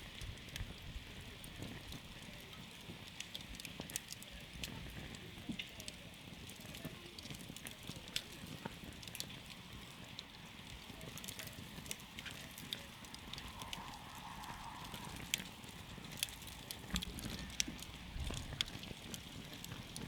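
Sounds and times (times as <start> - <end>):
burning wood crackling: 0.0 - 20.0
low rumble of flame: 0.0 - 20.0.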